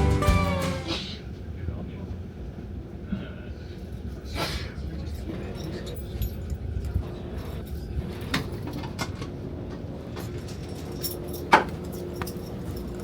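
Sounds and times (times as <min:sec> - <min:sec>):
train rumbling: 0:00.0 - 0:03.1
light clicks and rattles: 0:10.2 - 0:13.0.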